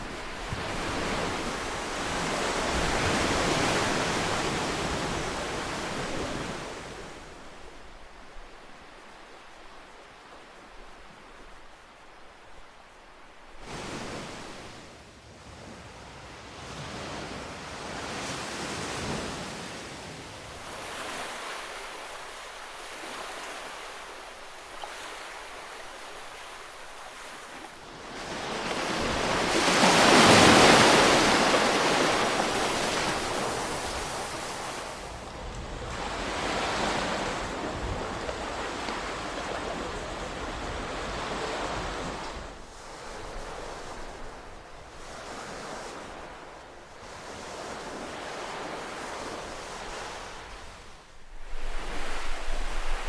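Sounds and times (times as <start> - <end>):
ocean waves washing ashore: 0.0 - 53.0.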